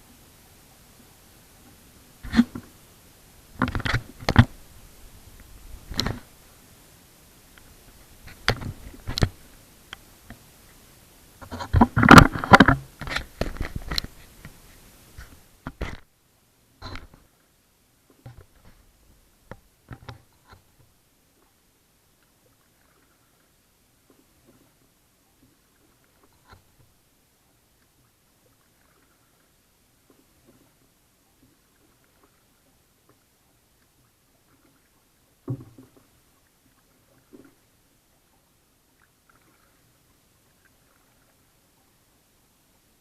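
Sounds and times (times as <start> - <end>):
paddle splashing water: 0.0 - 43.0
water rippling: 0.0 - 43.0
paddle thuds against kayak hull: 35.5 - 36.0.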